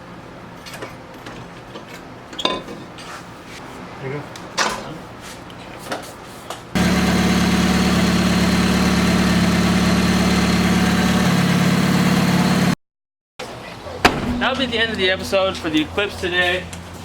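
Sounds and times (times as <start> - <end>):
car engine idling: 6.8 - 12.8.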